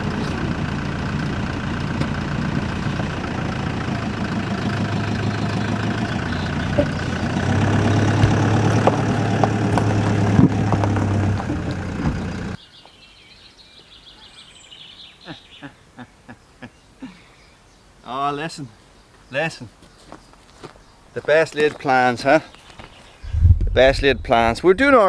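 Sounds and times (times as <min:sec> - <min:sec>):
chainsaw engine running: 0:00.0 - 0:12.6.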